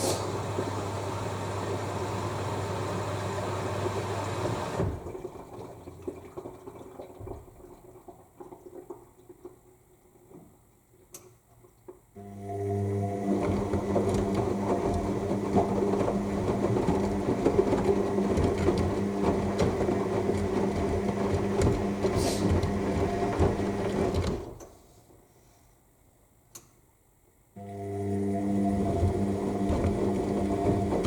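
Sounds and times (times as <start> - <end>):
washing machine motor hum: 0.0 - 6.3, 12.2 - 24.6, 27.6 - 31.0
wet laundry sloshing and thudding: 13.3 - 24.6
faint click: 26.5 - 26.8.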